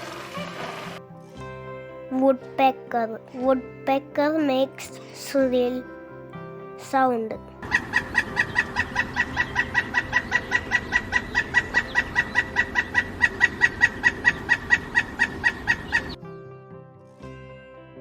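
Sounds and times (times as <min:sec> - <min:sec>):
woodpecker calling: 0:07.6 - 0:16.2.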